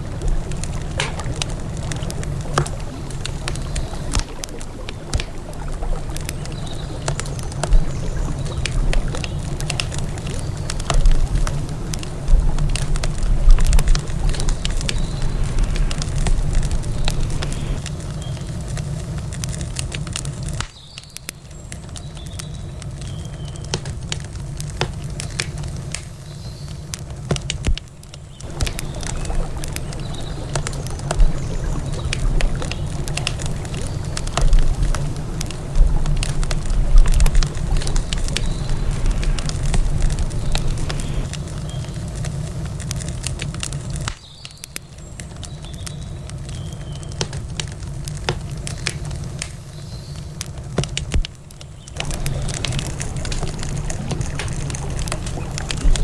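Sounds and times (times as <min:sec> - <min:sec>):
low riverside rush: 0:00.0 - 0:17.9, 0:28.4 - 0:41.4, 0:52.0 - 0:56.0
campfire crackling and popping: 0:00.0 - 0:56.0.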